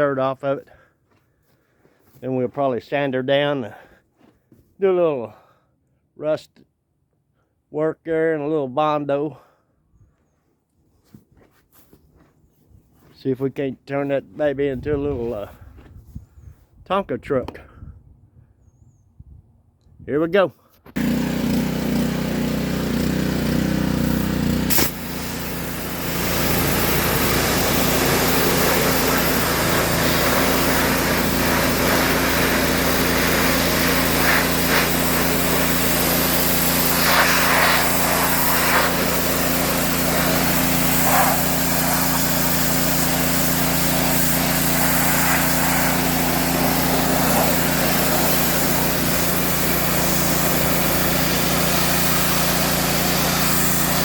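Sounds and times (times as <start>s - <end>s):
pressure washer engine running: 21.0s - 54.0s
water jet hissing: 24.1s - 54.0s.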